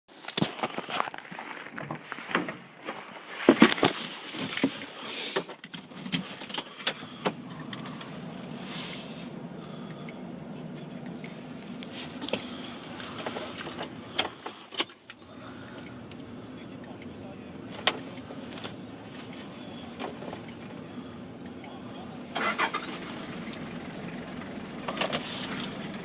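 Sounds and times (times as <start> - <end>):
diesel engine cranking and starting: 4.4 - 26.0
diesel engine idling: 5.8 - 26.0.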